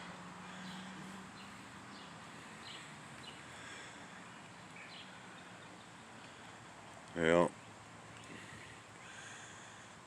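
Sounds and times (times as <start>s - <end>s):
outdoor background hiss: 0.0s - 10.0s
faint bird chirps: 0.6s - 6.3s.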